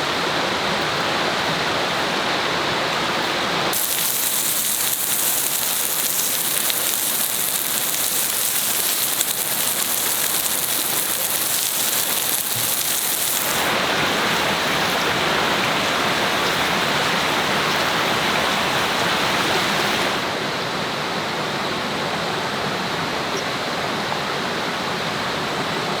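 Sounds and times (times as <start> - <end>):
running water rushing: 0.0 - 20.4.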